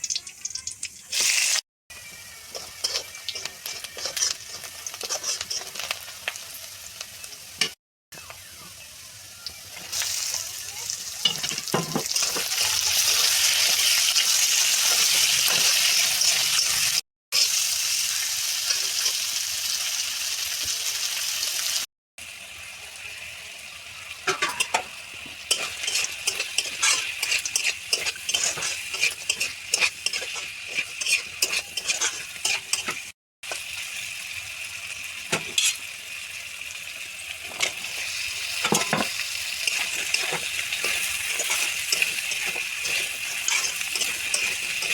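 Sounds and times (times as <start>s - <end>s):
food sizzling in hot oil: 0.0s - 44.9s
spoon scraping a pan: 2.4s - 6.5s, 11.2s - 16.9s, 24.3s - 33.6s, 35.3s - 35.9s, 37.4s - 44.9s.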